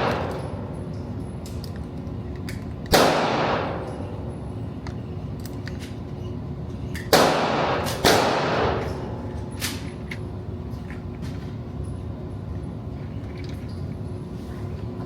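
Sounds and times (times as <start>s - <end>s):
gunshots with echo: 2.9s - 3.9s, 7.1s - 8.9s.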